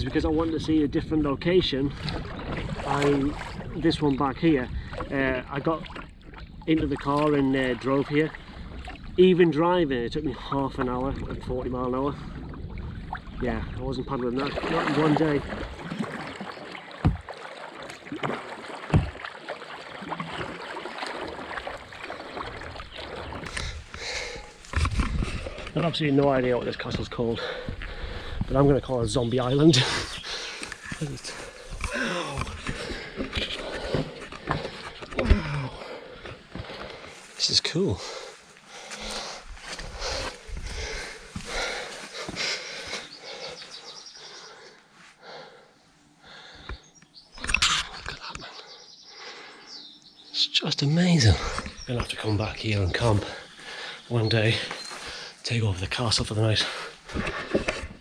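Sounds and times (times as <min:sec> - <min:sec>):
paddle splashing water: 0:01.8 - 0:09.8, 0:10.4 - 0:28.5, 0:29.7 - 0:37.4, 0:56.4 - 0:58.0
small sharp water drips: 0:14.4 - 0:24.8
microphone rumble and rustle: 0:23.3 - 0:29.1, 0:38.8 - 0:43.0
person breathing hard: 0:23.5 - 0:24.6, 0:27.4 - 0:28.5, 0:30.0 - 0:37.3, 0:38.0 - 0:46.8, 0:49.1 - 0:49.7, 0:53.3 - 0:54.1.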